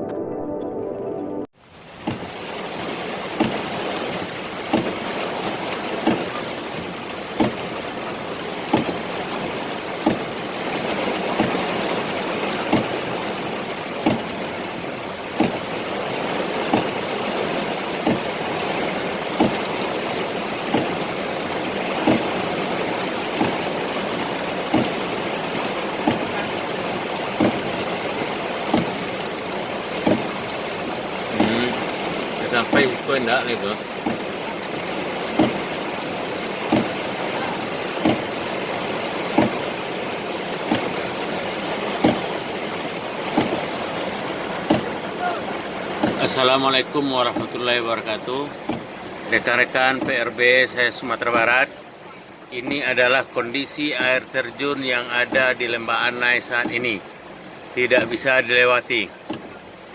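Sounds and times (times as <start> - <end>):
rushing floodwater: 1.5 - 59.9
waterfall roaring: 1.6 - 59.9
short repeating thump: 4.7 - 7.7, 10.0 - 10.3, 14.0 - 14.4, 18.0 - 18.3, 22.0 - 22.3, 24.7 - 25.0, 26.0 - 26.4, 28.7 - 29.1, 30.0 - 30.4, 34.0 - 34.3, 35.3 - 35.7, 36.7 - 37.0, 38.0 - 38.3, 39.3 - 39.7, 40.6 - 41.0, 42.0 - 42.4, 43.3 - 43.7, 44.6 - 45.0, 46.0 - 46.3.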